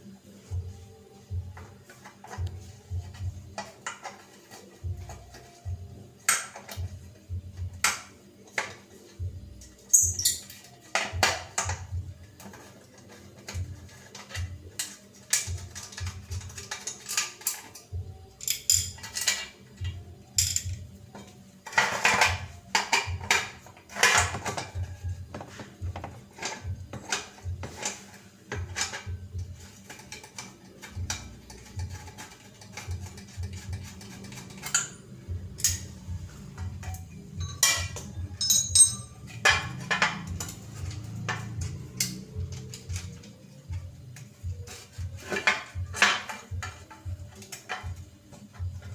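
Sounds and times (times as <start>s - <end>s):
metal tools clinking and knocking: 12.4s - 25.6s, 29.7s - 43.7s.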